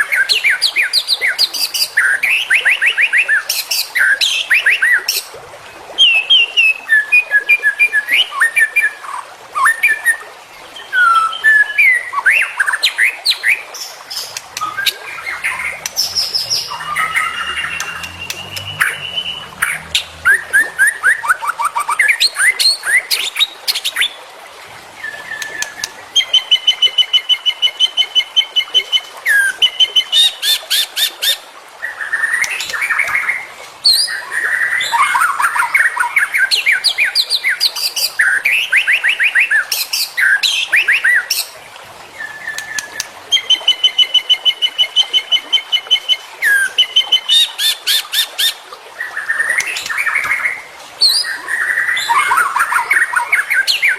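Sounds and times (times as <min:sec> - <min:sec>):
songbird singing: 0:10.8 - 0:24.2, 0:49.1 - 0:53.9.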